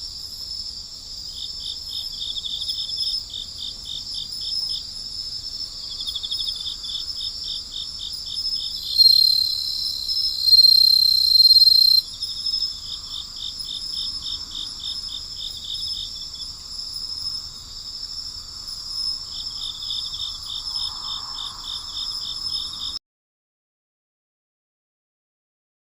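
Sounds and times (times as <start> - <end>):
cricket chirping: 0.0 - 23.0
insects trilling: 0.1 - 23.0.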